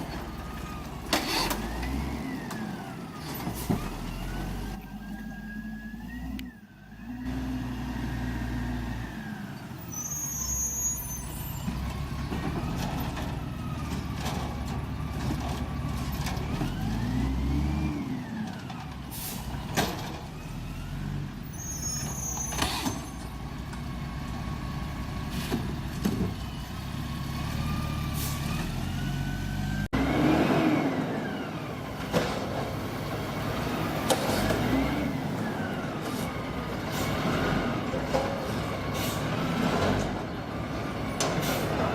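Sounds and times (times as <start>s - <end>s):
short high squeals: 9.9s - 11.7s, 21.5s - 23.2s.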